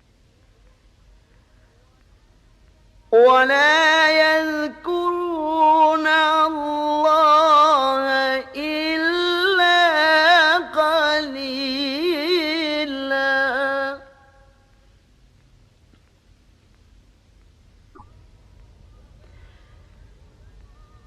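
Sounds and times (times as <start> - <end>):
man reciting melodically: 3.1 - 14.2.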